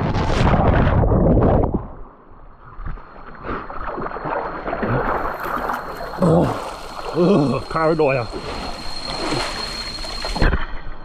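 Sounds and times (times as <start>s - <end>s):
waterfall and stream rushing: 5.2s - 10.5s.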